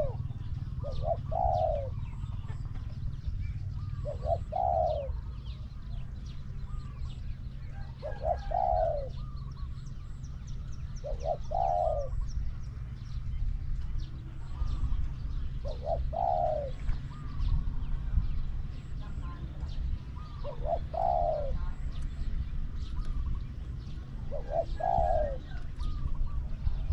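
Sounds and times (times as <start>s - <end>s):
dove cooing: 0.0s - 26.9s
small birds chirping: 0.0s - 26.9s.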